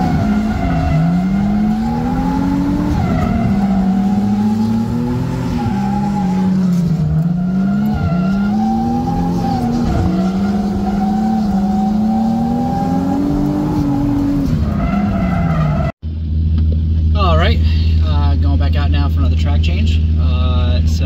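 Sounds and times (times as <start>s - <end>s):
car engine revving hard: 0.0s - 15.2s
skidding tyres: 0.0s - 16.0s.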